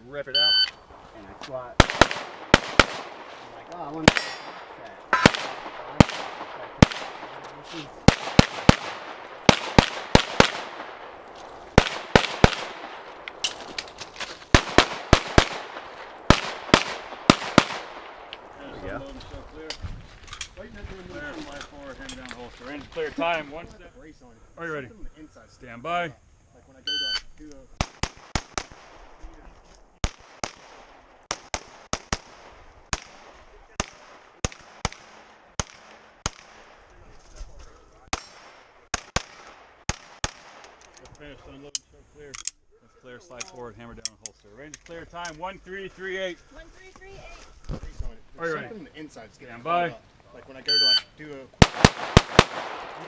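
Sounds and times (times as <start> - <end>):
pistol shots: 1.8 - 3.4, 4.0 - 13.7, 14.5 - 18.4, 27.8 - 29.0, 30.0 - 36.8, 38.1 - 40.8, 51.6 - 53.0.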